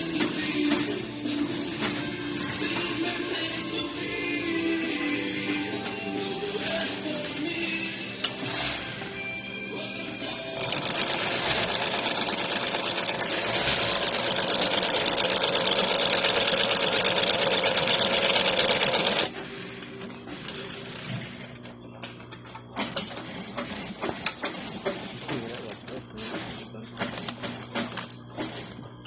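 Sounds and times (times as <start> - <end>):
sewing machine stitching rattle: 10.6 - 19.3.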